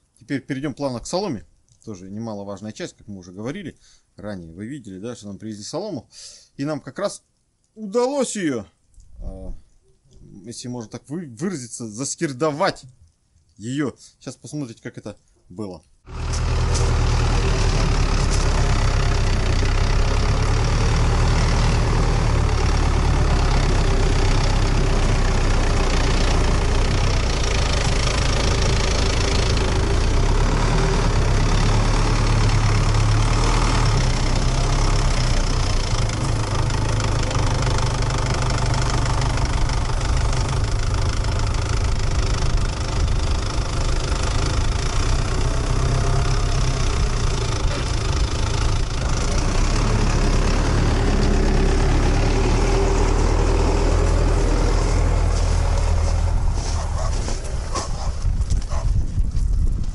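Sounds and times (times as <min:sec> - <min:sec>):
tractor diesel engine running: 0:16.1 - 0:59.9.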